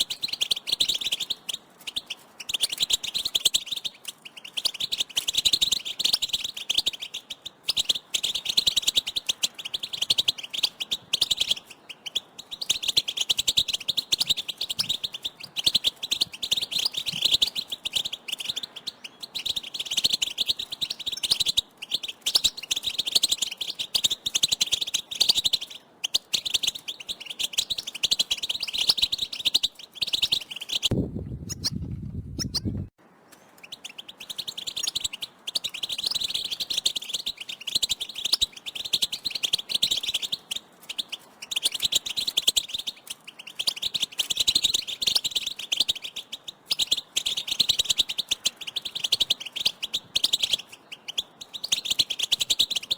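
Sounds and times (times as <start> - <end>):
low hum: 30.9 - 32.9
goldfinches twittering: 31.5 - 32.9, 33.6 - 52.9.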